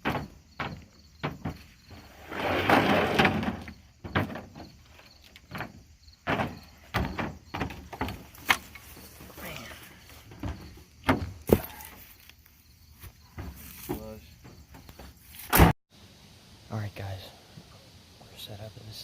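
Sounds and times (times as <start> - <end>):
knocks and thumps: 0.0 - 8.8, 10.2 - 11.8, 13.1 - 15.8.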